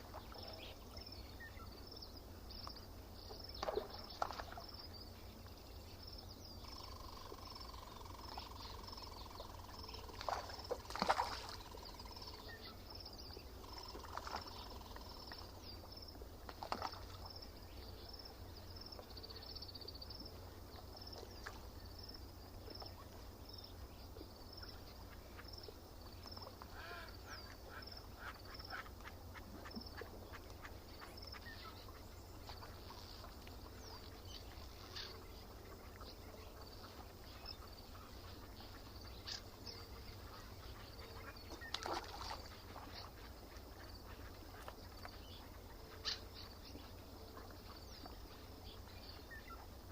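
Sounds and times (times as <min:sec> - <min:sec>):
lower bird calls: 0:26.2 - 0:49.9.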